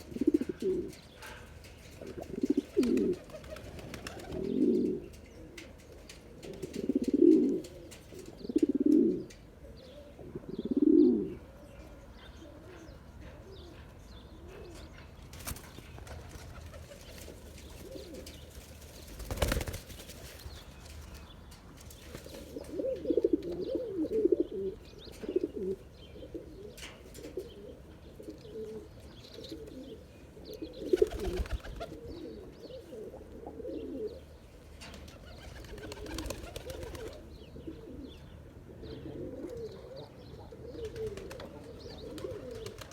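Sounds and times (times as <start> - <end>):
pigeon cooing: 0.0 - 5.8, 6.4 - 15.0, 22.5 - 34.3, 35.2 - 42.9.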